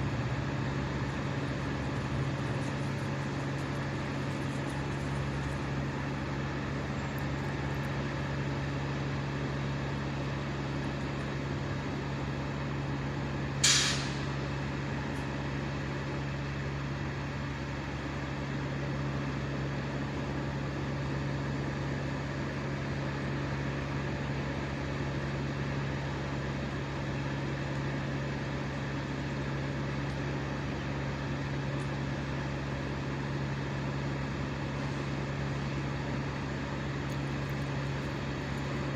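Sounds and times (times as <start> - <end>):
engine humming at high speed: 0.0 - 38.9
short sharp hiss: 13.6 - 14.4.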